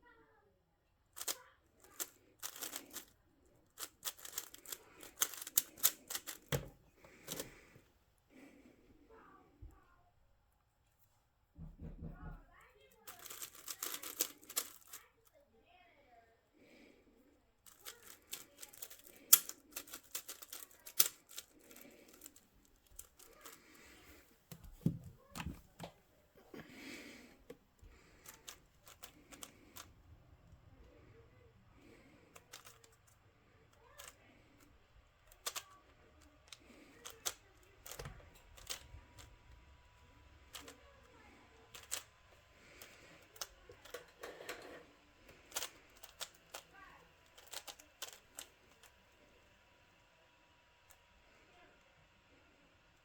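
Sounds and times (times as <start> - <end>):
puzzle cube clicking: 1.2 - 3.1, 3.8 - 7.6, 13.1 - 15.0, 17.7 - 25.8, 35.3 - 35.6, 41.7 - 42.1, 47.4 - 48.8.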